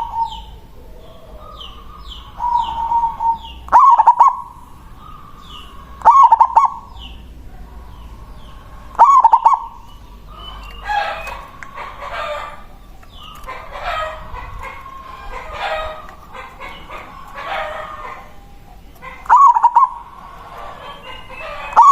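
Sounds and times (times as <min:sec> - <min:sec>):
dove cooing: 0:00.0 - 0:21.9
soft bird calls: 0:00.0 - 0:21.9.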